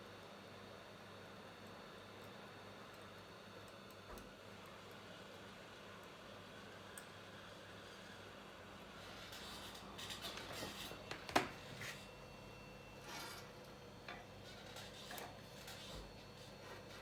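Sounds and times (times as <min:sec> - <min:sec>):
hand tools scraping on phone: 0:13.0 - 0:13.6.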